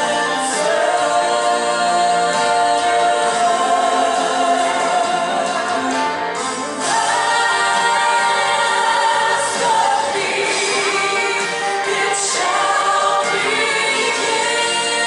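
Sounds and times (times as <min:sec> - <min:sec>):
group singing gospel song: 0:00.0 - 0:15.0.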